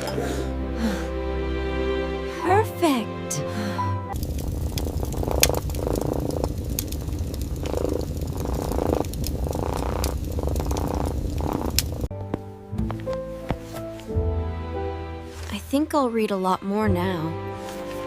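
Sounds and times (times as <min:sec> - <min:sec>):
cat purring: 0:04.4 - 0:12.1.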